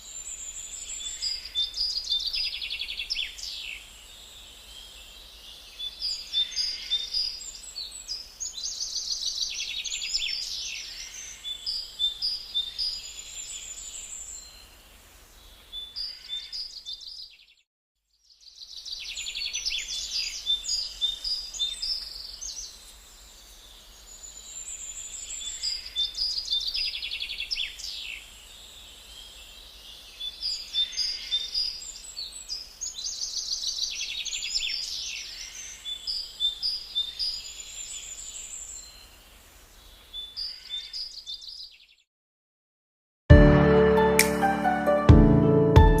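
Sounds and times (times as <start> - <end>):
birds chirping and calling: 30.2 - 39.0, 40.0 - 41.8.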